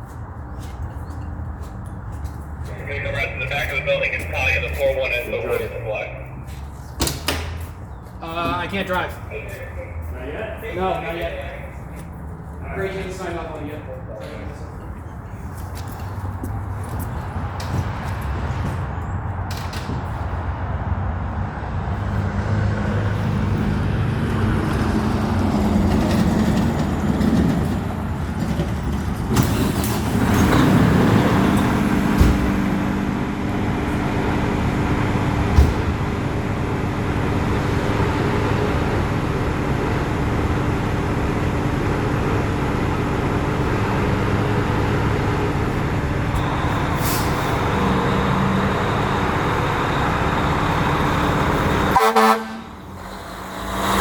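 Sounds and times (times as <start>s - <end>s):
diesel truck engine pulling away: 1.9s - 9.2s, 20.1s - 54.0s.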